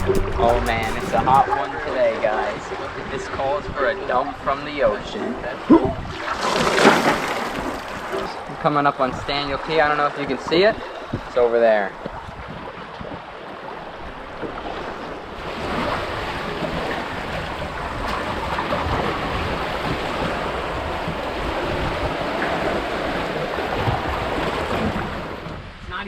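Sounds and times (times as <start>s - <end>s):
wind on microphone: 0.0s - 6.4s, 12.0s - 25.8s
wind and sea water rushing: 1.1s - 26.0s.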